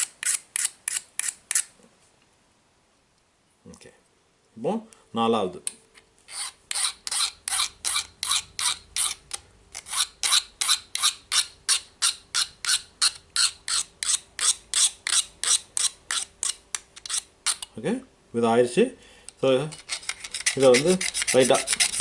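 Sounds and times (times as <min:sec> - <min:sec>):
hand file rasping on steel: 0:06.3 - 0:09.2, 0:09.8 - 0:17.7, 0:19.7 - 0:22.0.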